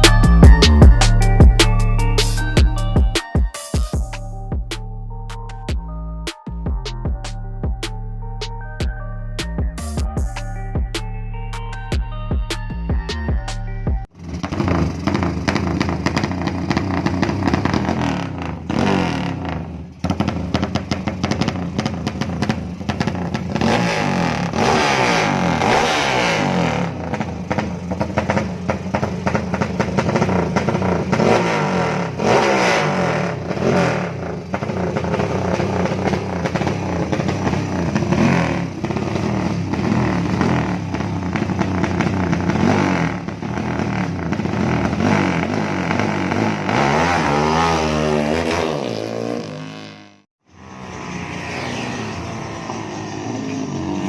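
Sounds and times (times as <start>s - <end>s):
motorcycle engine revving: 14.0s - 54.0s.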